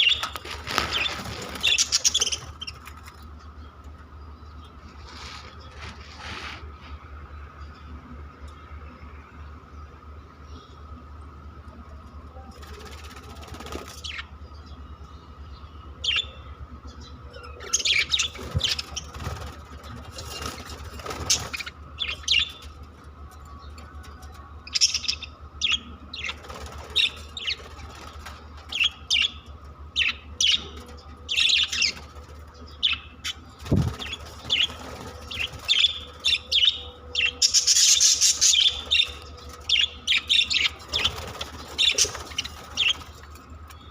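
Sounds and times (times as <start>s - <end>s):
budgerigars chirping: 0.0s - 3.0s, 16.0s - 22.8s, 24.7s - 27.7s, 28.7s - 43.2s
steady background hum: 0.0s - 43.9s.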